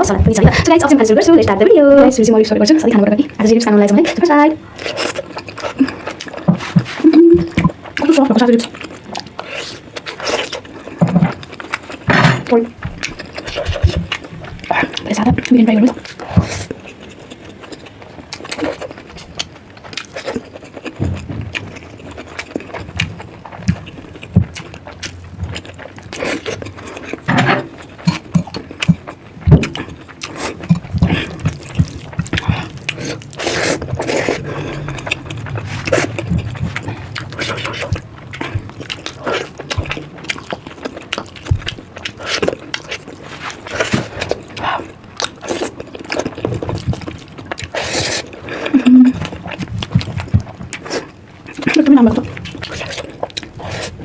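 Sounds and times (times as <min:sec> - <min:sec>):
wet chewing and smacking: 0:03.9 - 0:54.0.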